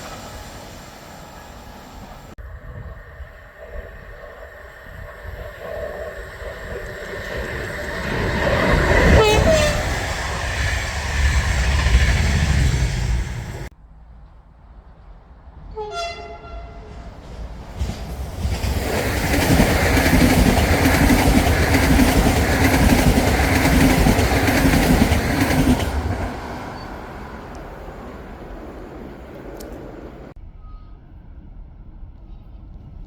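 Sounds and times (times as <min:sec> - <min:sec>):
train wheels rumbling and clattering: 0:05.0 - 0:15.8, 0:16.4 - 0:30.4
train horn blast: 0:09.0 - 0:10.2, 0:15.7 - 0:17.2.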